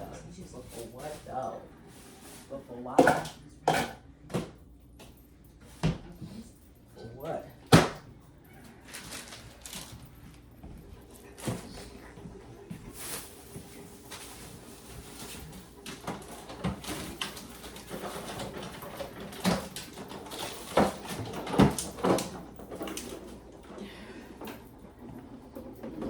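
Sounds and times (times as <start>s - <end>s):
groceries being set down: 8.8s - 10.1s.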